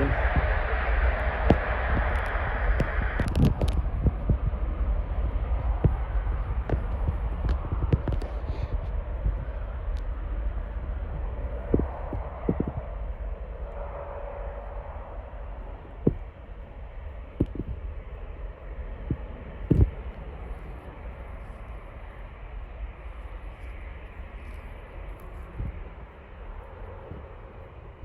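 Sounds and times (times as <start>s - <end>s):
jet engines rumbling: 0.0s - 28.0s
thumps on microphone: 6.6s - 8.4s, 11.7s - 12.8s.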